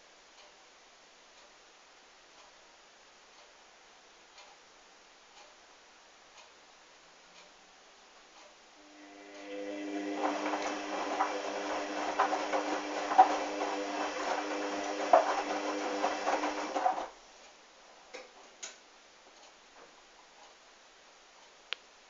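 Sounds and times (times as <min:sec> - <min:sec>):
washing machine motor humming: 0:08.8 - 0:17.2.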